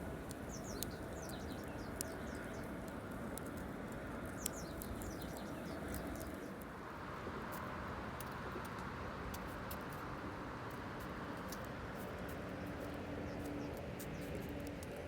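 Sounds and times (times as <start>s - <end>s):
campfire crackling and popping: 0.0s - 6.7s.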